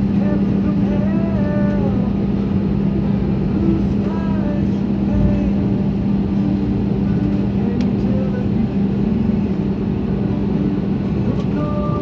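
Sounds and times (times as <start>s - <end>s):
jet engine rumble in cabin: 0.0s - 12.0s.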